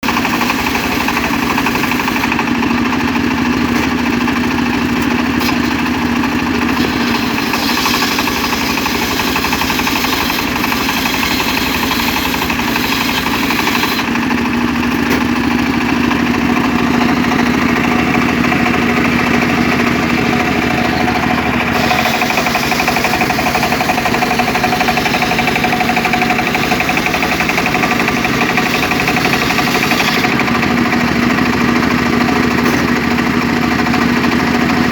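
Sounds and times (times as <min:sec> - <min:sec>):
sawmill engine running: 0:00.0 - 0:34.9.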